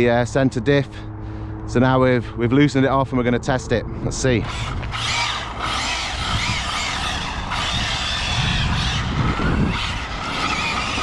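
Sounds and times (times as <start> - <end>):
low wind-like rumble: 0.0 - 11.0
electric motor whining: 4.2 - 11.0.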